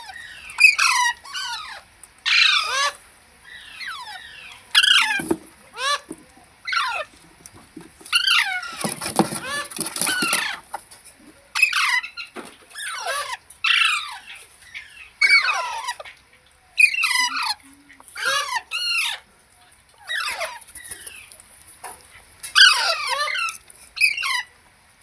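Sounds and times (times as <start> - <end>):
parrot squawking: 0.0 - 7.2, 11.5 - 16.1, 18.2 - 19.2, 22.5 - 24.5.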